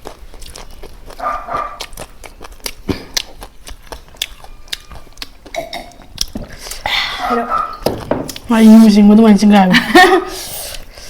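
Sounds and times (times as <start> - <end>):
chewing: 0.0 - 8.5.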